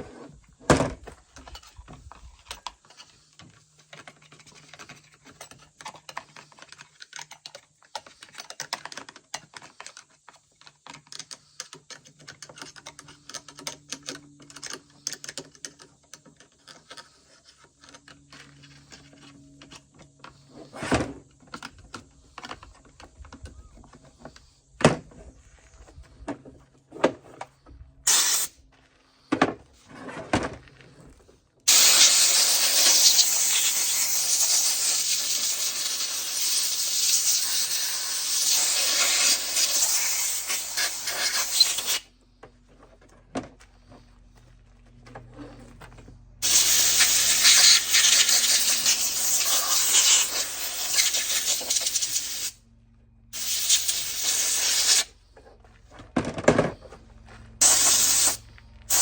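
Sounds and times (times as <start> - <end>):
air blow gun hissing: 28.1 - 28.5, 31.7 - 42.0, 46.4 - 52.6, 53.4 - 55.1, 57.6 - 59.0.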